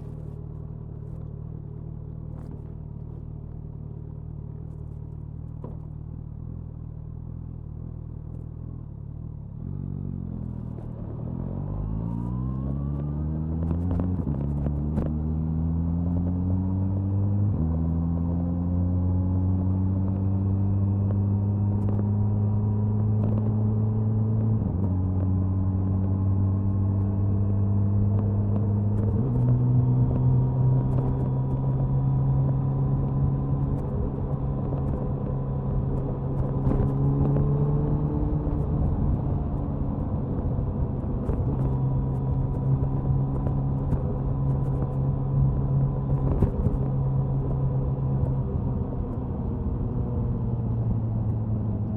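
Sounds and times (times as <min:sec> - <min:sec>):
motorcycle exhaust accelerating: 0:00.0 - 0:51.9
wind noise: 0:27.1 - 0:51.9.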